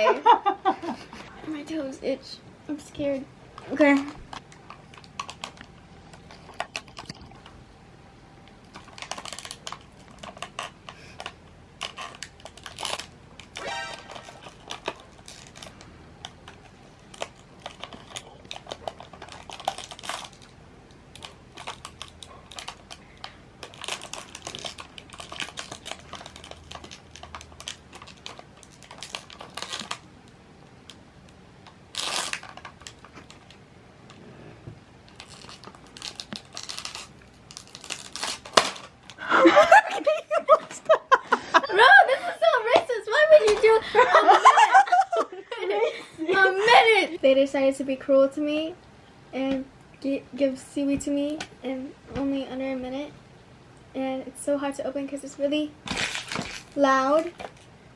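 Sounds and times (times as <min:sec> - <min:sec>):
packaging crinkling: 0:03.8 - 0:07.5, 0:08.6 - 0:31.0, 0:31.6 - 0:33.6, 0:35.1 - 0:39.2, 0:55.8 - 0:57.8
food crunching: 0:04.0 - 0:07.6, 0:08.5 - 0:31.0.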